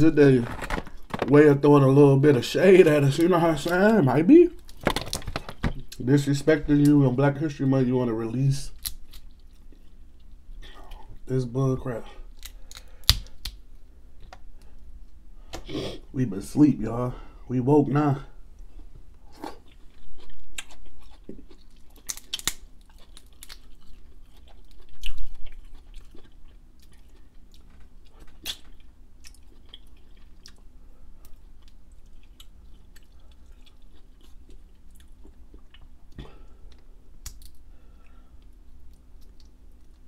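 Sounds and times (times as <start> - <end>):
shellfish shell cracking: 4.6 - 6.0, 8.7 - 9.6, 12.3 - 13.6, 21.5 - 26.3, 36.7 - 37.6
close-up chewing: 18.8 - 40.0.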